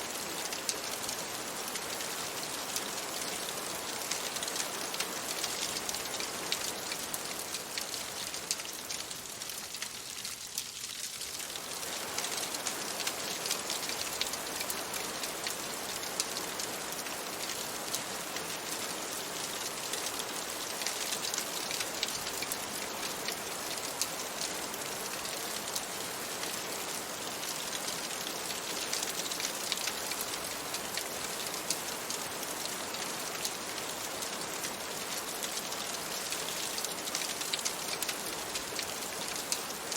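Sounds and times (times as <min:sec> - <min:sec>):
rain pattering on a window: 0:00.0 - 0:39.9.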